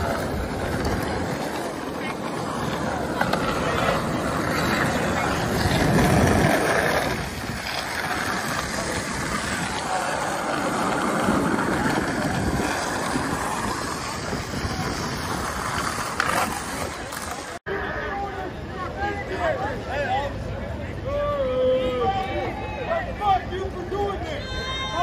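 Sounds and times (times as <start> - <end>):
motorcycles passing: 0.0 - 17.6.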